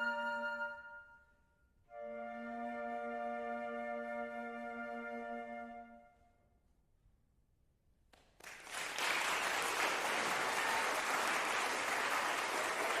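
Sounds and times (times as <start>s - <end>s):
audience applause: 8.2s - 13.0s.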